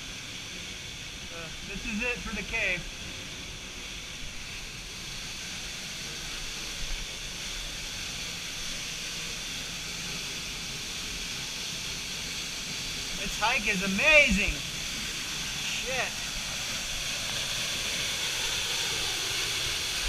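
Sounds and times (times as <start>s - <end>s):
waterfall rushing: 13.1s - 16.5s.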